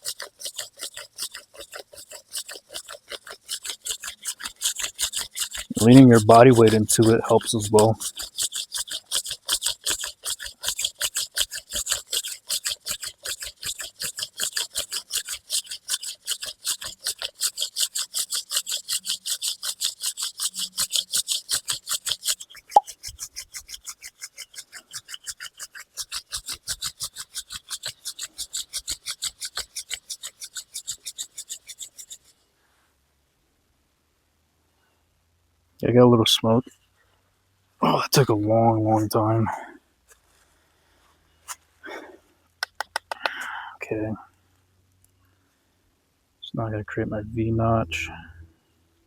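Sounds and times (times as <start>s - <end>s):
wooden spindle rubbing scrapes: 0.0s - 32.4s, 40.1s - 43.2s, 47.5s - 48.5s
sharp click: 42.6s - 43.4s.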